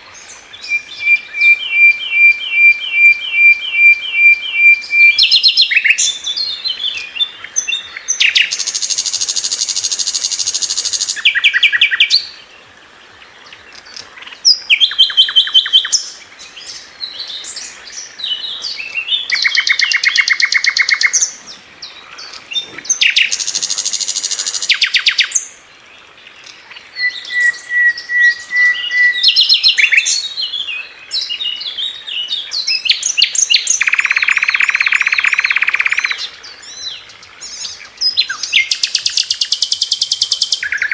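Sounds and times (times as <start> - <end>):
bird buzzy trills and chirps: 0.0 - 40.9.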